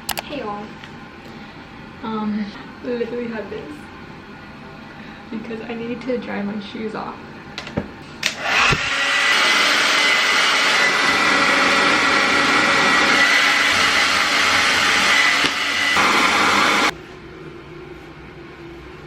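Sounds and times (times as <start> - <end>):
hair dryer blowing: 8.0 - 16.9.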